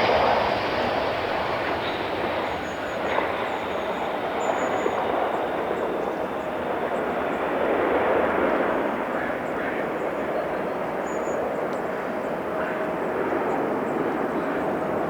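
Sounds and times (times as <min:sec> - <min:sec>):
jet engine rushing: 0:00.0 - 0:09.0.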